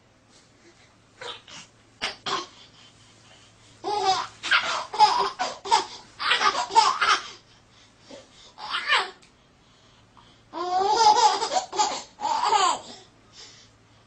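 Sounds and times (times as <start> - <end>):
baby laughing: 3.8 - 7.4, 10.6 - 12.9.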